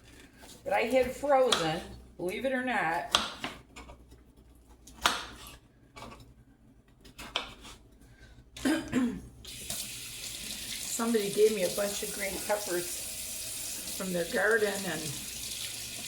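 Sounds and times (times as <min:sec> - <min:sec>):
person coughing: 0:08.6 - 0:09.3
kitchen tap running: 0:09.4 - 0:16.0.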